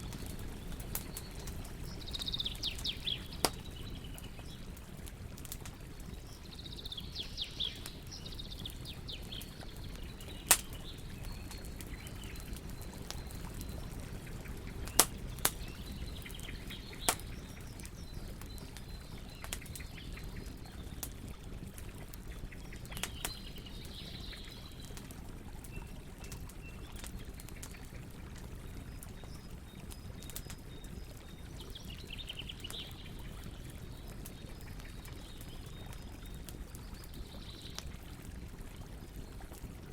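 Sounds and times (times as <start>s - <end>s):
fire popping sharply: 0.0s - 6.2s, 7.7s - 25.1s
birds chirping: 0.0s - 25.0s
wood fire crackling: 0.0s - 39.9s.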